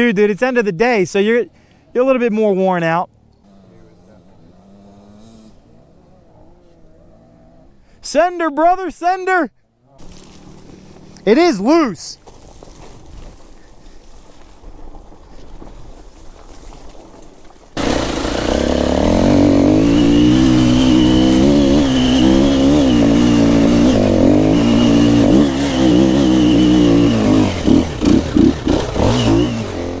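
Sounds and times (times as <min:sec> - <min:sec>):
dirt bike engine revving: 0:03.4 - 0:07.8, 0:10.0 - 0:11.9, 0:17.8 - 0:30.0.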